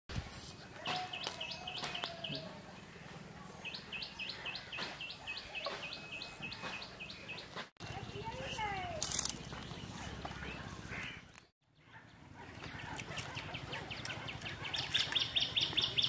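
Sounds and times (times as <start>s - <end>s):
bird chirping: 3.6s - 16.0s.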